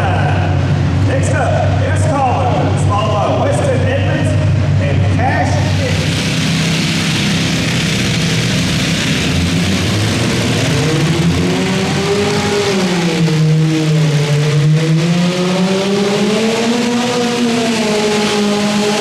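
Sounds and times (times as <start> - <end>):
tractor engine running under load: 5.5 - 14.7.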